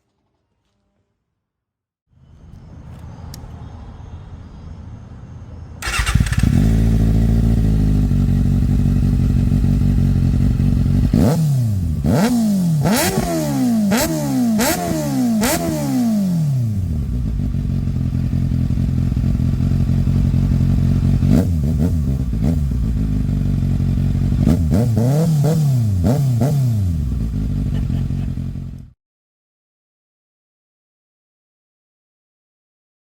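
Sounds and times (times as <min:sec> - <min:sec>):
motorcycle engine idling: 0:05.8 - 0:12.2, 0:16.6 - 0:25.0, 0:26.9 - 0:28.9
motorcycle engine revving: 0:05.8 - 0:29.0.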